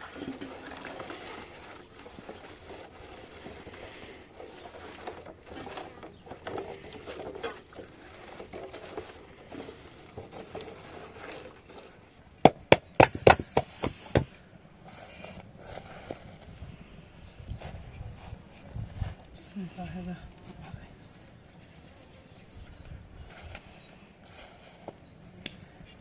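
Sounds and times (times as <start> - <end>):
short high hiss: 13.0 - 14.2.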